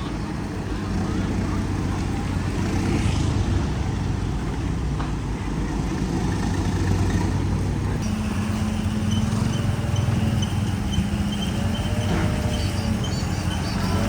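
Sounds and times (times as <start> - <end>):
bulldozer diesel engine drone: 0.0 - 14.0
faint high-pitched chirps: 8.0 - 14.0.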